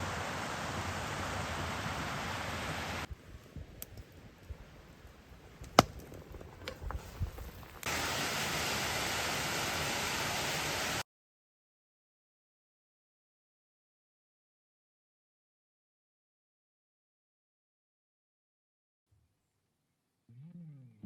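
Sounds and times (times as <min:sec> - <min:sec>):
rush of flowing water: 0:00.0 - 0:03.1, 0:07.8 - 0:11.0.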